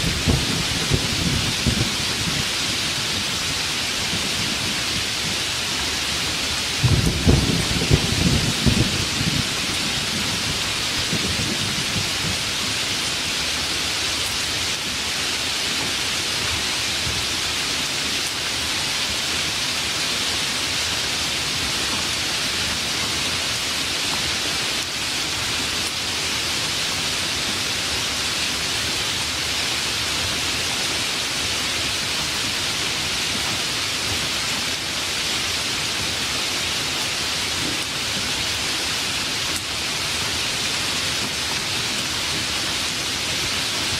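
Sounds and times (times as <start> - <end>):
low rumble of thunder: 0.0 - 3.4, 6.8 - 12.6
steady heavy rain: 0.0 - 43.9.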